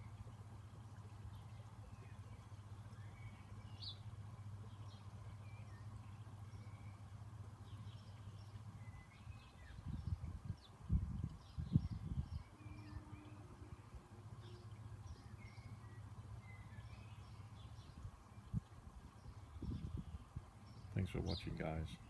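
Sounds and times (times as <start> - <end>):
faint bird chirps and whistles: 11.4 - 17.8.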